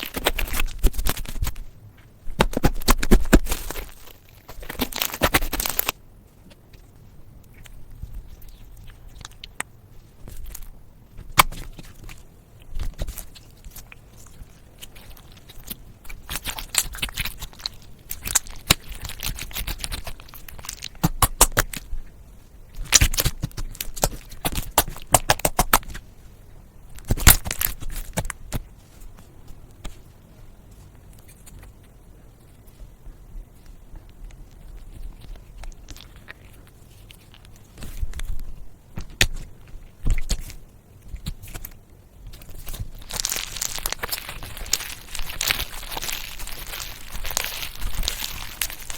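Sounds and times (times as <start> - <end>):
slime squeezed by hand: 42.5 - 48.9.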